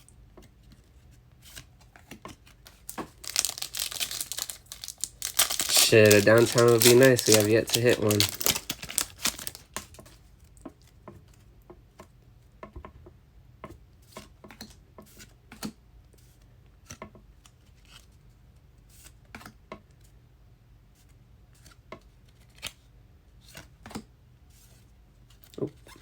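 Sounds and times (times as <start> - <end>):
cards clicking and flicking: 2.9 - 9.6.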